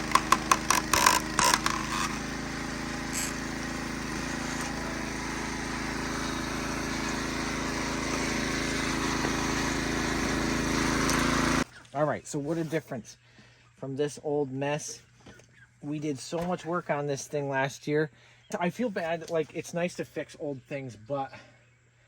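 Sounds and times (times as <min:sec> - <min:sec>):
wood cracking and splintering: 0:00.0 - 0:02.3
log splitter engine running: 0:00.0 - 0:11.7.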